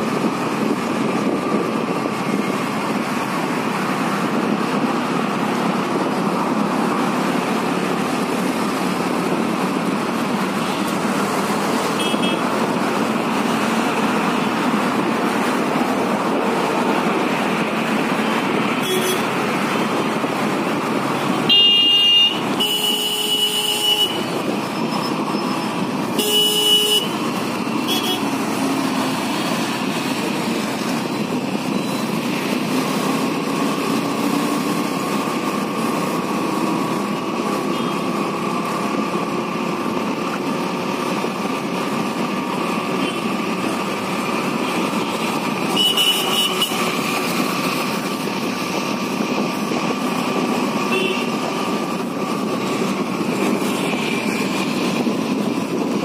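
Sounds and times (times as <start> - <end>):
motorcycle engine: 0.0 - 56.0
vehicle horn honks: 12.0 - 12.4, 18.8 - 19.2, 21.5 - 24.2, 26.2 - 27.1, 27.9 - 28.3, 45.7 - 46.8, 50.9 - 51.3.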